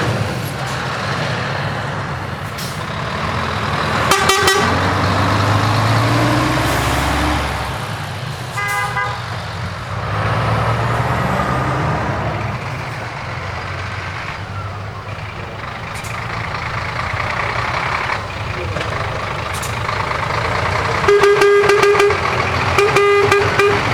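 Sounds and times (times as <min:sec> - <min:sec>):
truck engines rumbling: 0:00.0 - 0:23.9
truck horn blast: 0:03.5 - 0:07.5, 0:08.5 - 0:11.3, 0:19.3 - 0:23.9.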